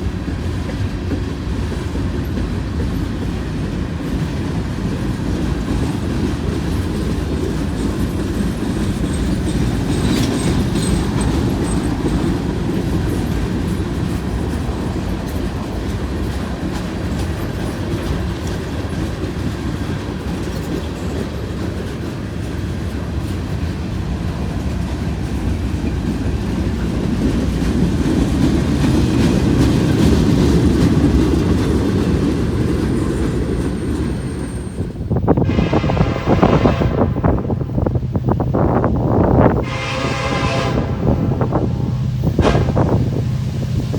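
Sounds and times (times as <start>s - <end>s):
clickety-clack over rail joints: 0.0s - 43.9s
freight train wheels rumbling: 0.0s - 43.9s
high wheel squeal: 33.0s - 36.4s.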